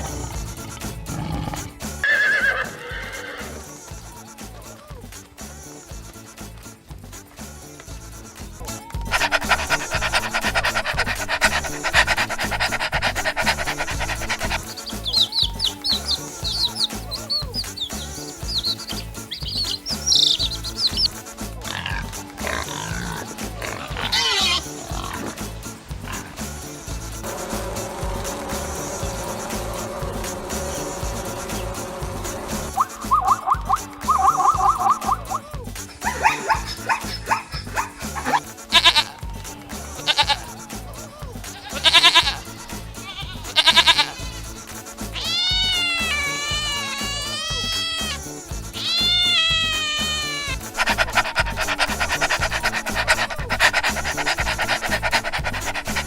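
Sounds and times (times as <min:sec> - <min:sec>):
pig sounds: 0:00.0 - 0:03.8, 0:09.1 - 0:27.6, 0:28.2 - 0:40.6, 0:41.2 - 0:56.0
upbeat backing music: 0:00.0 - 0:56.0
goat bleating: 0:09.1 - 0:21.1, 0:24.0 - 0:24.8, 0:37.8 - 0:39.2, 0:40.0 - 0:40.5, 0:41.5 - 0:44.5, 0:45.2 - 0:48.2, 0:48.8 - 0:56.0
high quick chirps: 0:09.2 - 0:21.2
cat meowing: 0:11.3 - 0:21.1, 0:45.2 - 0:48.2, 0:48.8 - 0:51.5.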